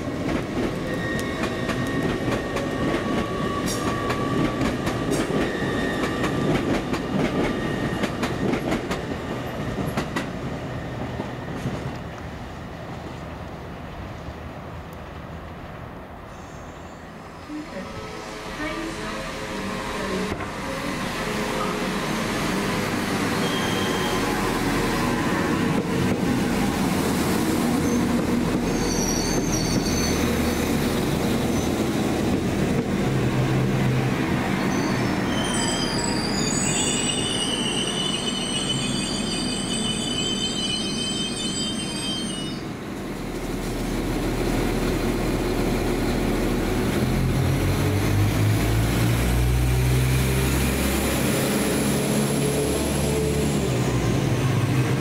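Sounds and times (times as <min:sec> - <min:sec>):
train wheels rumbling: 0:00.0 - 0:13.2, 0:17.6 - 0:55.0
high metallic squeal: 0:23.4 - 0:24.4, 0:28.7 - 0:30.6, 0:34.6 - 0:42.7.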